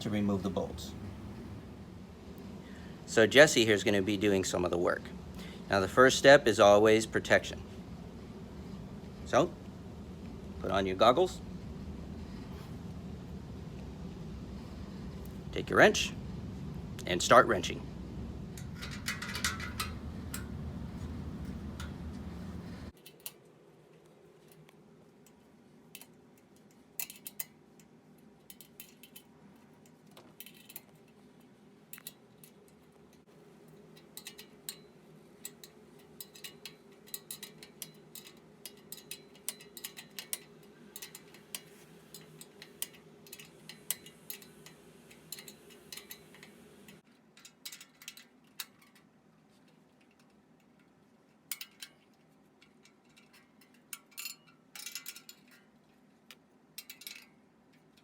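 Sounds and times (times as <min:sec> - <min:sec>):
low steady hum: 0:00.0 - 0:58.0
wrench metallic clicks: 0:34.0 - 0:49.0.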